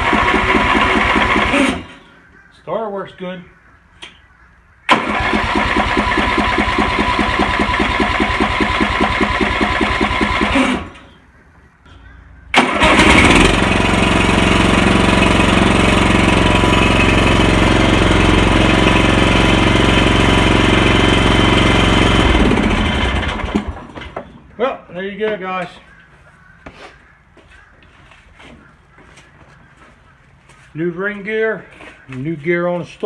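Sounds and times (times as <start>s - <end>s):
engine starter cranking: 0.0s - 2.0s, 4.9s - 11.1s, 12.5s - 16.2s, 20.4s - 24.2s
mower engine running: 0.0s - 2.0s, 4.9s - 11.1s, 12.5s - 24.3s.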